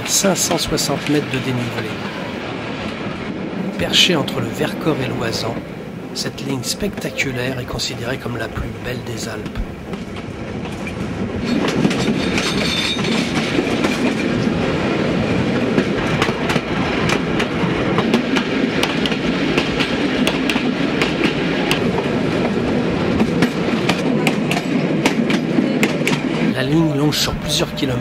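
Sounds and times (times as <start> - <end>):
wheels clattering over rail joints: 9.4 - 14.6.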